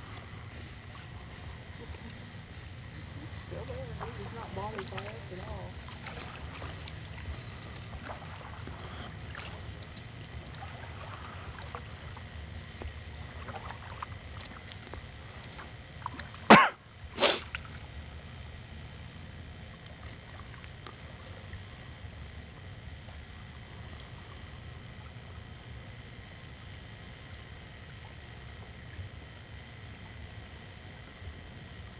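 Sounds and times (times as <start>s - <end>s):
small scattered ticks: 0.0s - 16.5s
person sneezing: 16.5s - 17.5s.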